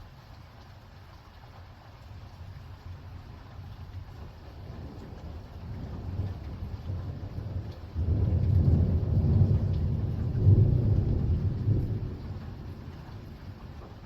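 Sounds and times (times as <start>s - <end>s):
rolling thunder: 4.6s - 13.9s.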